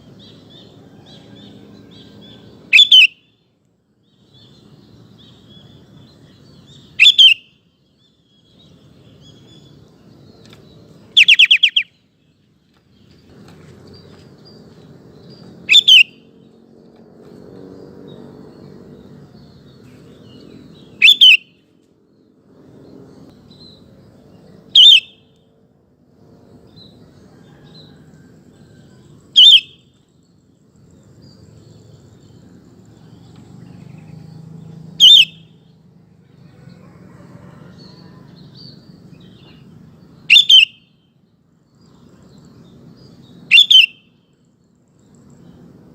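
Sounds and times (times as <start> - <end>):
bulbul loud calls: 1.2 - 3.3, 6.6 - 7.6, 11.1 - 12.0, 15.7 - 16.3, 20.8 - 21.5, 24.7 - 25.2, 29.3 - 29.9, 35.0 - 35.7, 40.3 - 40.9, 43.5 - 44.1
faint bird chirps: 4.2 - 16.5, 19.4 - 21.8.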